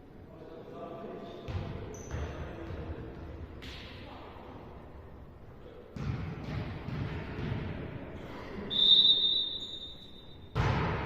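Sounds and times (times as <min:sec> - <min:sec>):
referee's whistle blast: 0:08.7 - 0:10.6
volleyball being struck: 0:10.5 - 0:11.0.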